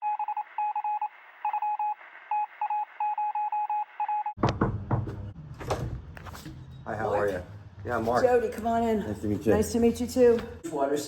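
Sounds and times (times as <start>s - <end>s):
loud clicks and knocks: 4.4s - 6.6s.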